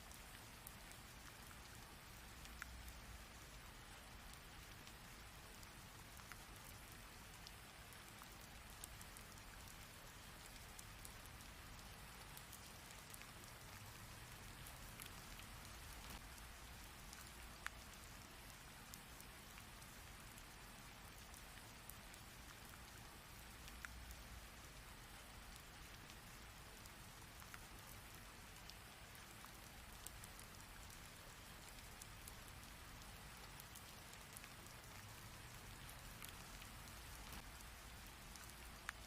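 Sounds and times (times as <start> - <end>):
rain falling steadily: 0.0 - 39.0
raindrops striking close by: 0.0 - 39.0.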